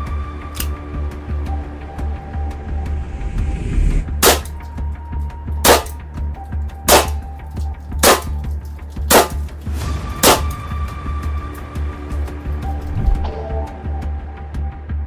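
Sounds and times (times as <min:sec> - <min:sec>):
air pistol shots: 0:04.2 - 0:04.7, 0:05.7 - 0:06.0, 0:06.9 - 0:07.2, 0:08.0 - 0:10.6.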